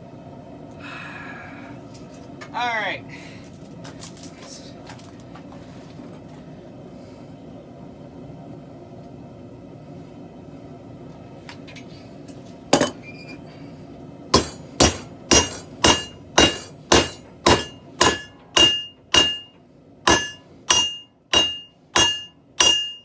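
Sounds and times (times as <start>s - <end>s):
hammer striking steel on anvil: 12.8s - 13.0s, 14.4s - 23.0s.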